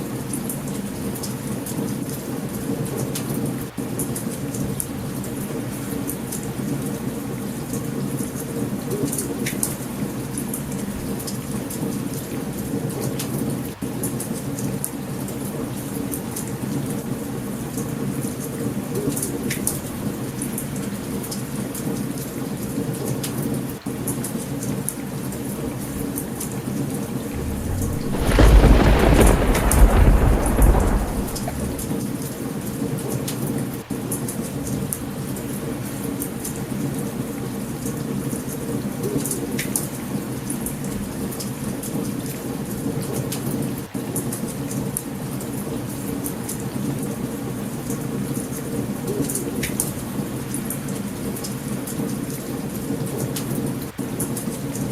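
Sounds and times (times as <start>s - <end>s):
heavy rain: 27.3s - 32.4s
campfire crackling pops: 27.4s - 32.0s
low rumbling thunder: 27.4s - 32.2s.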